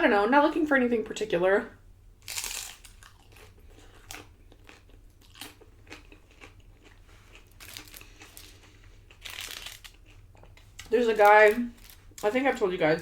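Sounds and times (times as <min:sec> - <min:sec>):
person crunching tortilla chips: 0:02.2 - 0:12.3.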